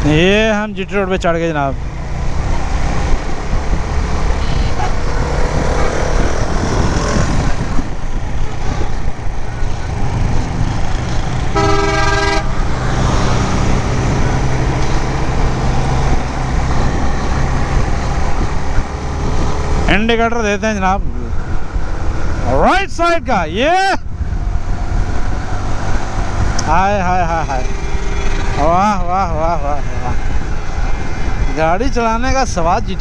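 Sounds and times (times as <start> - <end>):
wind rushing over microphone: 0.0 - 33.0
vehicle horn: 4.4 - 6.4, 11.5 - 12.7, 27.5 - 29.0.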